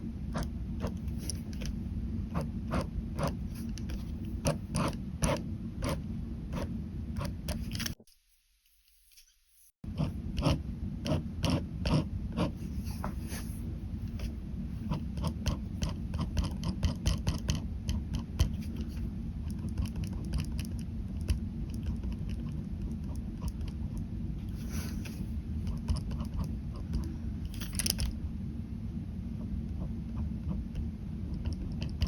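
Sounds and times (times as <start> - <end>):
steady low rumble: 0.0 - 8.0, 9.8 - 32.0
ballpoint pen scratching on paper: 2.3 - 8.0, 9.9 - 13.6, 14.2 - 20.8, 25.6 - 27.1.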